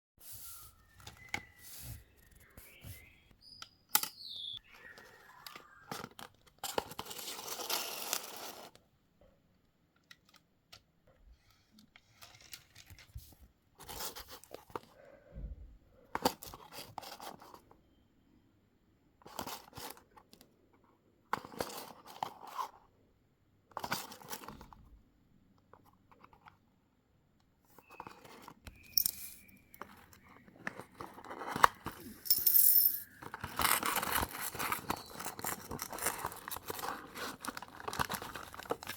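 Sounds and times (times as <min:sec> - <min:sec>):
packaging tearing and crinkling: 0:33.4 - 0:38.9.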